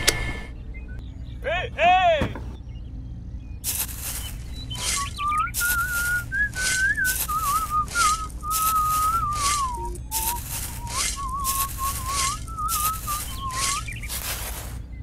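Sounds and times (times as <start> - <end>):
toy shovel scooping rice: 3.7 - 14.8
person whistling a tune: 4.8 - 13.9.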